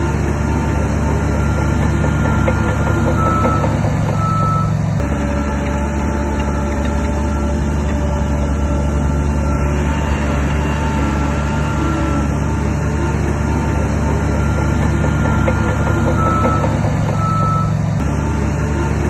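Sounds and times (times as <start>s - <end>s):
heavy machine engine running: 0.0s - 19.0s
reversing alarm beeping: 1.2s - 5.5s, 6.4s - 12.3s, 14.1s - 17.8s.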